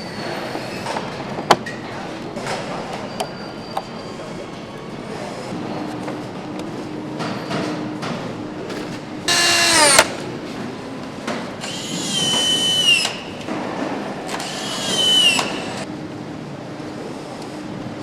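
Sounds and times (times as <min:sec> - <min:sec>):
power tool whirring: 0:08.7 - 0:10.1.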